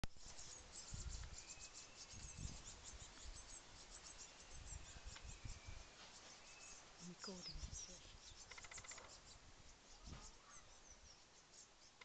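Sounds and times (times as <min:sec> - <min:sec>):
high-pitched fledgling chirps: 0:00.1 - 0:12.0.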